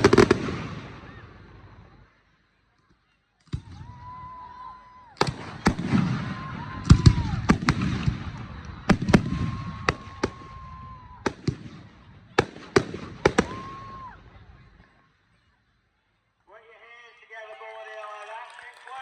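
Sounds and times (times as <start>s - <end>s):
fireworks bursting bangs: 0.0s - 2.0s, 5.2s - 14.8s
fireworks crackling: 0.0s - 2.2s, 5.1s - 15.0s
whistling tone: 8.3s - 10.7s.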